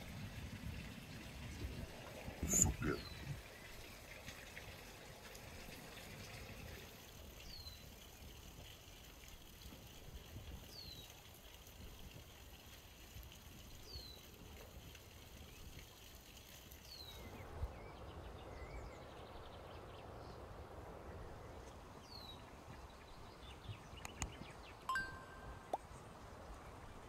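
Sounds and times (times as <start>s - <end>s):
rush of water or wind: 0.0s - 27.0s
two-note electronic chime: 24.9s - 25.8s.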